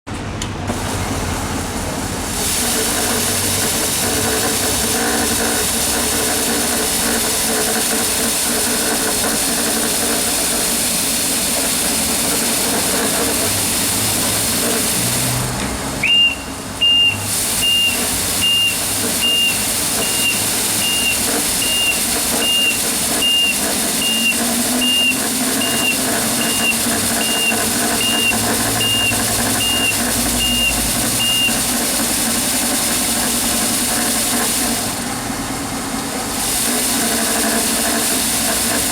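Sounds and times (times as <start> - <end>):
floor scrubber motors hissing: 0.4 - 38.9
reverse alarm beeping: 16.0 - 31.6.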